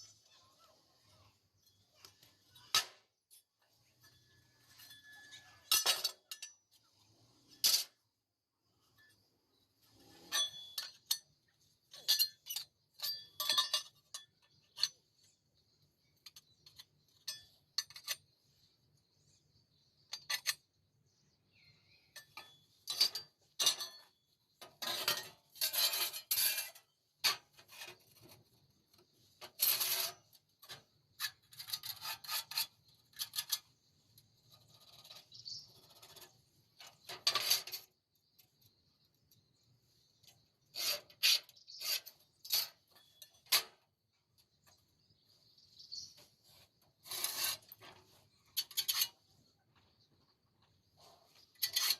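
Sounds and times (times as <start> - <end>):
metallic clinks and knocks: 1.6 - 8.2, 8.8 - 18.7, 20.0 - 20.8, 21.9 - 45.2
metal scraping strokes: 44.8 - 49.4.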